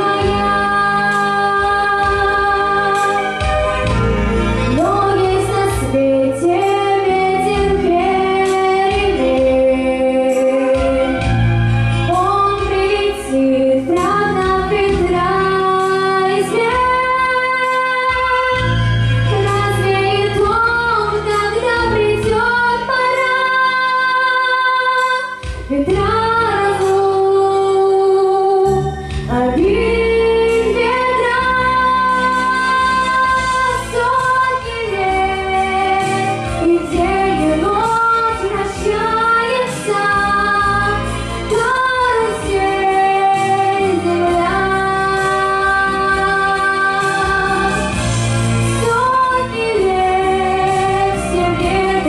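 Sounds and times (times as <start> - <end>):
instrumental backing track: 0.0 - 52.0
girl singing slow song: 19.3 - 47.8.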